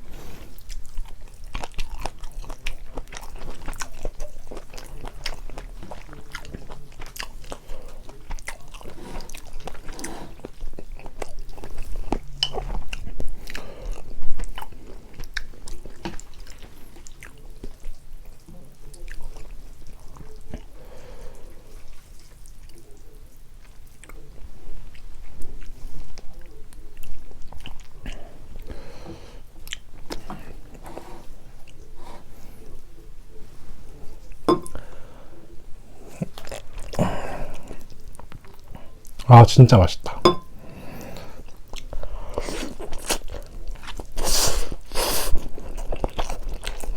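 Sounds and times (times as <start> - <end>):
chewing and biting noodles: 0.0 - 20.8, 41.2 - 46.9.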